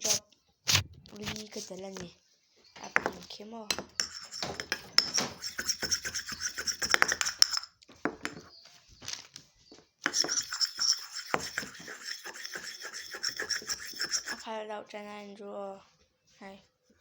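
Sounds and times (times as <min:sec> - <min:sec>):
utensil scraping a bowl: 0:02.9 - 0:08.6, 0:10.0 - 0:14.5.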